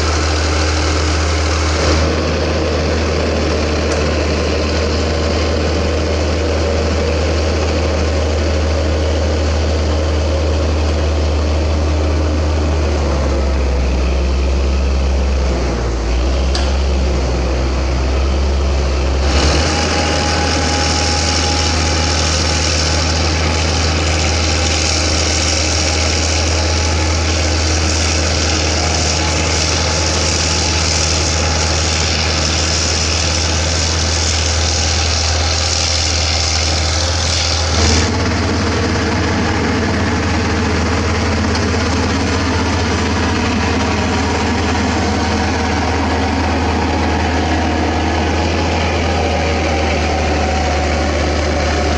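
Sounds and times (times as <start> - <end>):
bulldozer diesel engine running: 0.0 - 51.9
hiss: 19.2 - 38.1.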